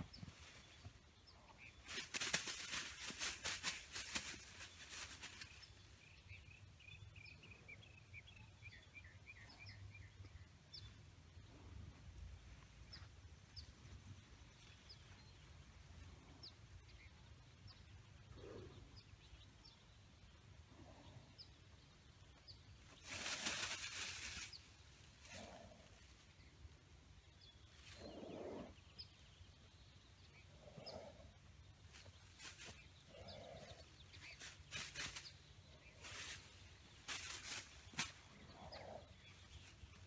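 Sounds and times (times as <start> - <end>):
low animal-like sounds: 18.1 - 19.3, 33.0 - 34.1, 38.2 - 39.6.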